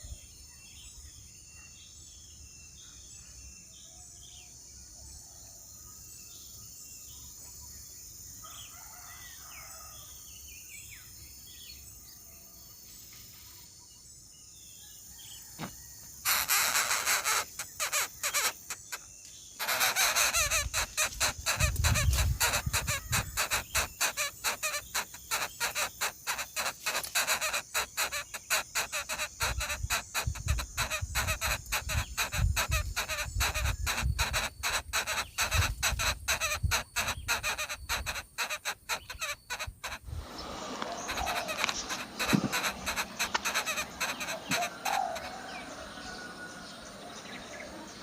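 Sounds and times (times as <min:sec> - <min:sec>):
bird harsh clucking call: 0:16.3 - 0:46.5.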